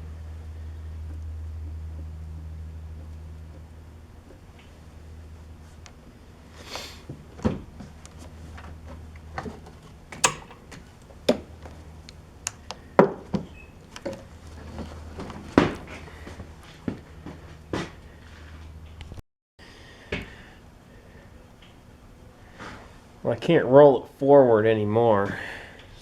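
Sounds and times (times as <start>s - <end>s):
tools and parts knocking: 10.2s - 10.7s.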